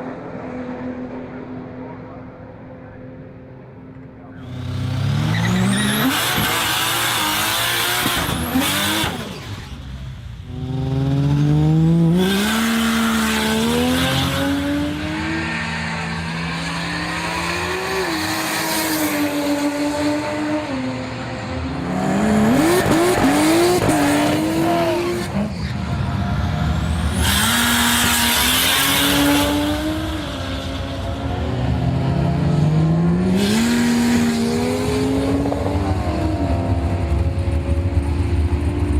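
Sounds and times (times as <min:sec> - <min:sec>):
car engine accelerating through gears: 0:10.5 - 0:38.9.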